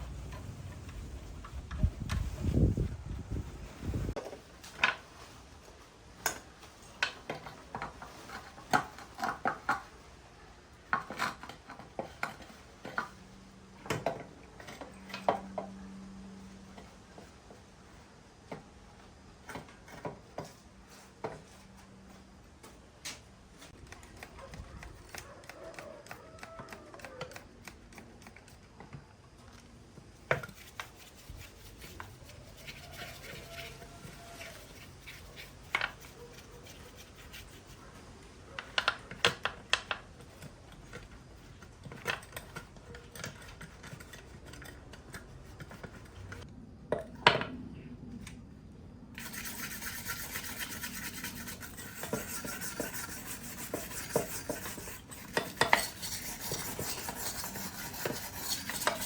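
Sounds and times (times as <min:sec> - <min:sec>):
scratchy scrubbing of metal part: 0:30.4 - 0:38.0, 0:49.2 - 0:59.0.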